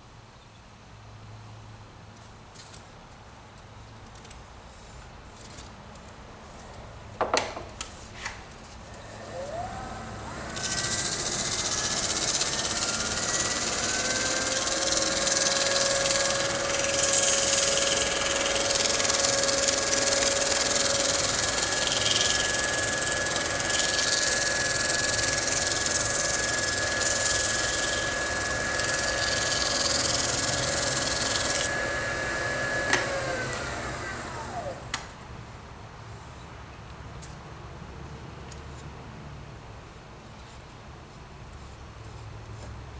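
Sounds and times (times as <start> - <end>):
lathe motor whine: 8.9 - 35.1
hissing rubbing on spinning wood: 9.2 - 33.5.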